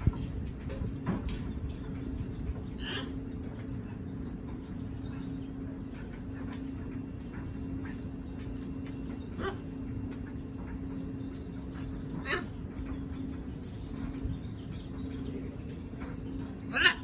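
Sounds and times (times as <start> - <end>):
steady low hum: 0.0 - 17.0
parrot call: 2.8 - 3.2, 16.6 - 17.0.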